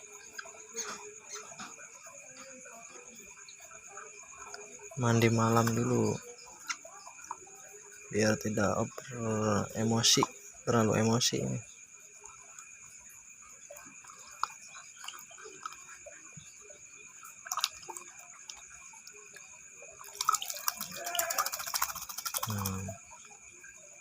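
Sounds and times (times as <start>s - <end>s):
high insect chirr: 0.0s - 24.0s
water dripping and splashing: 12.2s - 24.0s.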